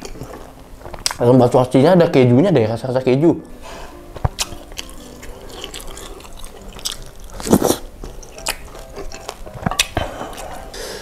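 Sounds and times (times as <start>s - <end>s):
chewing with wet mouth noises: 4.2s - 10.8s.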